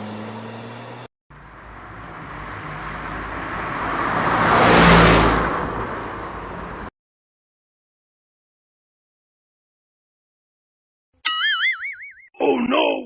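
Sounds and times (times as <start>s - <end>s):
vehicle engine: 0.0s - 6.9s
vehicle passing by: 0.0s - 6.9s.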